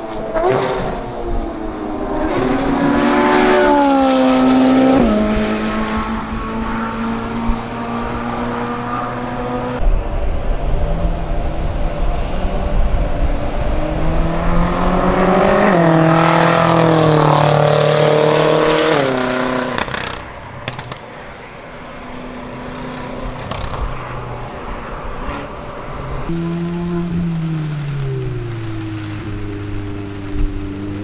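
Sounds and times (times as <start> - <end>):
car engine accelerating: 0.0 - 20.2, 22.4 - 31.0
another car engine: 22.6 - 31.0
exhaust cracks: 26.3 - 31.0.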